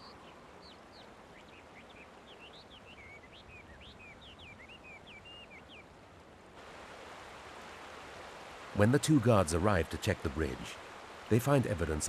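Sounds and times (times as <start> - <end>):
small bird chirping: 0.0 - 5.9
faint background hiss: 0.0 - 12.0.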